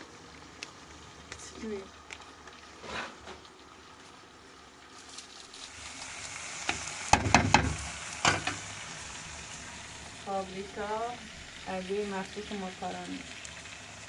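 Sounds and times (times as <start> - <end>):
food sizzling in hot oil: 0.0 - 14.0
utensil knocking against pot: 7.1 - 8.6.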